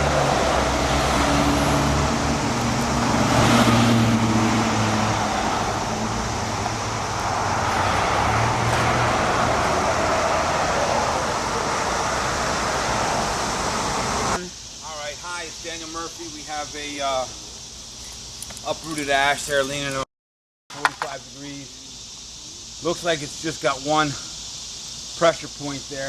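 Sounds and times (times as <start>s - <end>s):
cars driving past: 0.0s - 14.4s.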